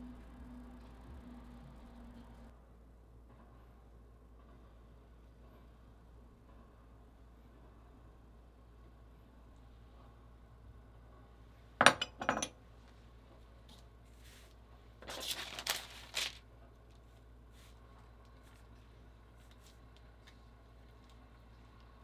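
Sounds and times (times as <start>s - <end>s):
kitchenware clattering and scraping: 11.8s - 12.6s
kitchenware clinking: 11.8s - 12.6s.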